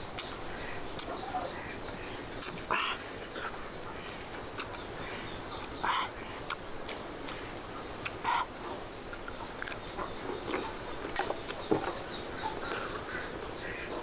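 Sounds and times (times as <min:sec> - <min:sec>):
person chewing crunchy fruit: 0:00.1 - 0:01.2, 0:02.4 - 0:02.7, 0:03.3 - 0:04.8, 0:06.4 - 0:07.4, 0:08.0 - 0:08.5, 0:09.1 - 0:11.6.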